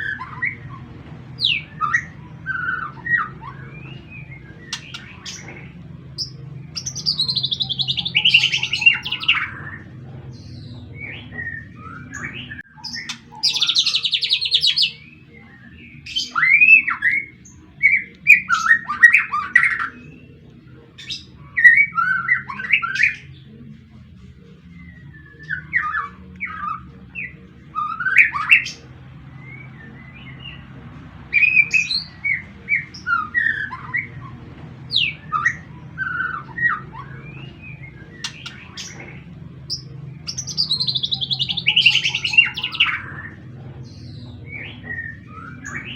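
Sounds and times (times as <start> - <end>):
bird singing trills and whistles: 0.0 - 45.9
steady low hum: 0.0 - 45.9.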